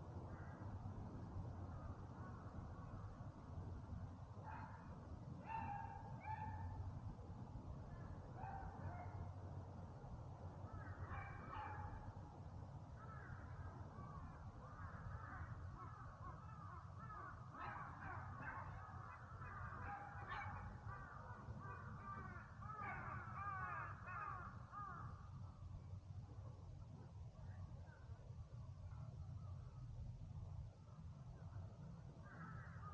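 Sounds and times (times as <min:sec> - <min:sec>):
birds cawing: 0:13.0 - 0:25.2
faint low rumble: 0:24.6 - 0:32.9.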